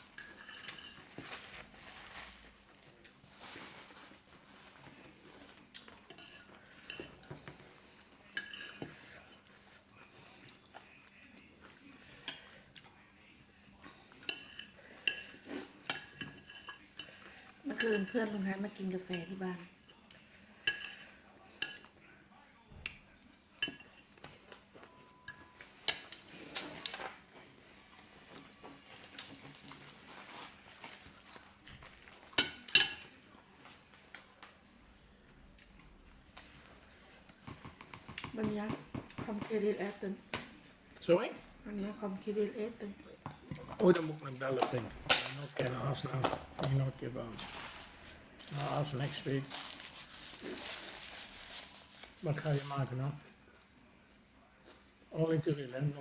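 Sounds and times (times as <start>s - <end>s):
cutlery clinking on plates: 0.0s - 1.7s, 4.8s - 9.5s, 14.0s - 22.0s, 22.8s - 34.4s, 43.2s - 46.8s.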